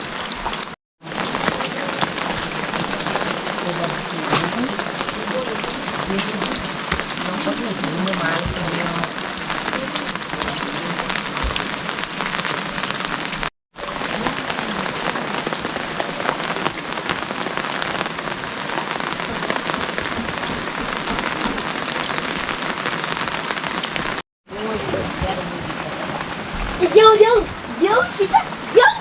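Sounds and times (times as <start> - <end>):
steady rain: 0.0 - 29.0.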